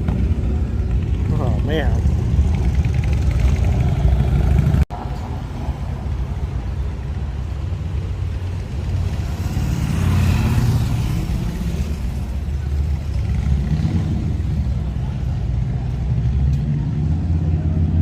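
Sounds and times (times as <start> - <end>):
motorcycle engine running: 0.0 - 4.8.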